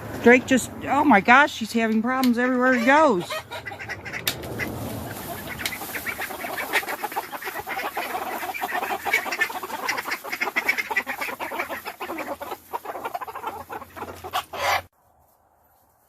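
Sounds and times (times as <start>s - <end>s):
chickens clucking: 0.0s - 14.9s
ducks quacking: 0.6s - 14.9s.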